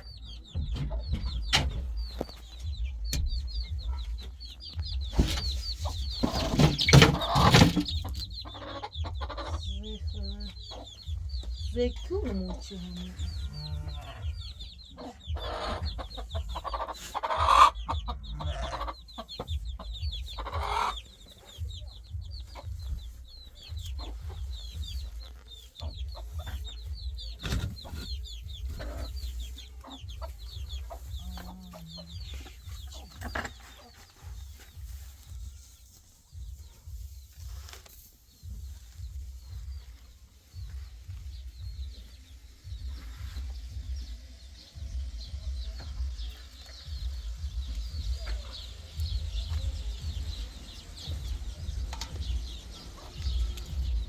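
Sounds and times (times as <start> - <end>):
low rumble: 0.0 - 6.5, 7.2 - 29.5, 42.7 - 54.0
chickens clucking: 0.0 - 54.0
clattering knocks: 0.4 - 3.7, 5.0 - 8.2.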